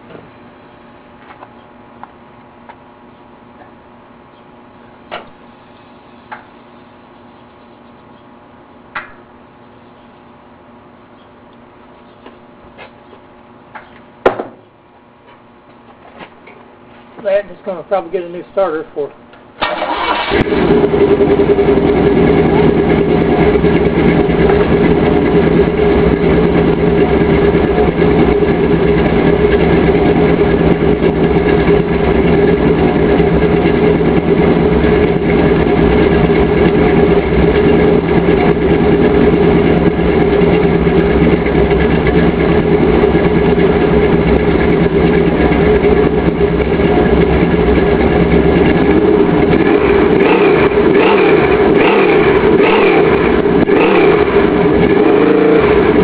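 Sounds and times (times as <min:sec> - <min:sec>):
car engine idling: 0:19.6 - 0:56.0.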